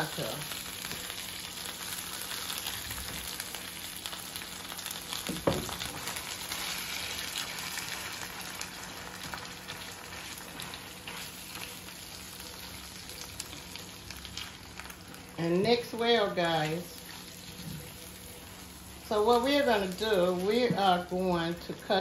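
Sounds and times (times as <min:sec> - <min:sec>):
meat and beans sizzling: 0:00.0 - 0:22.0
wooden spoon scraping a skillet: 0:10.1 - 0:11.7.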